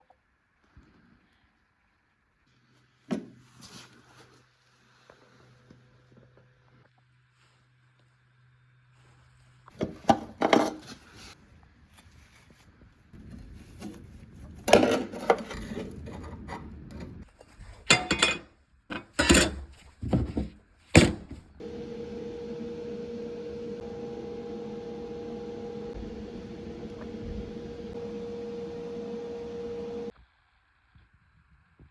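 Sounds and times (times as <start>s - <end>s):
steady hum with held tone: 21.6s - 30.2s.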